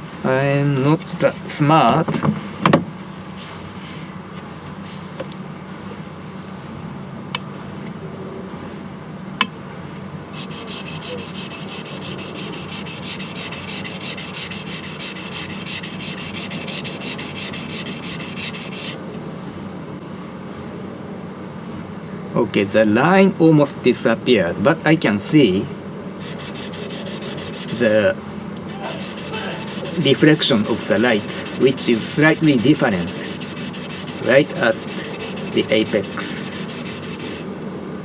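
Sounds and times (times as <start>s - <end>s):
knife scraping on whetstone: 10.4s - 19.0s, 26.2s - 28.0s, 28.7s - 37.4s.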